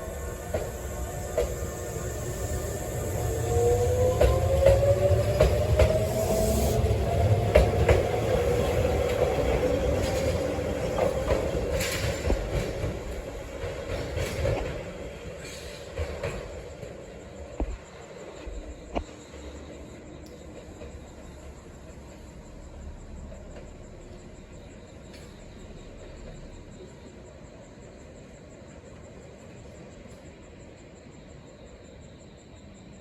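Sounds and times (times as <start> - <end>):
electric train motor whine: 0.0 - 13.5.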